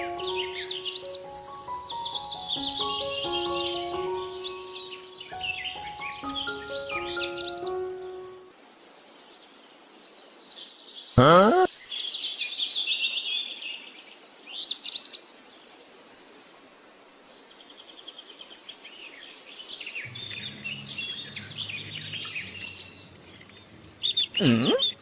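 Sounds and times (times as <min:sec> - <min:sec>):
birds chirping: 0:00.0 - 0:08.5, 0:20.1 - 0:25.0
low steady hum: 0:20.1 - 0:25.0.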